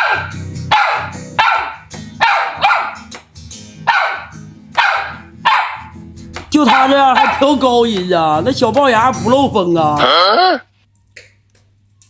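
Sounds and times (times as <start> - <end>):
dog barking in high yelps: 0.0 - 3.1, 3.8 - 6.0, 6.7 - 7.5
background music: 0.0 - 10.2.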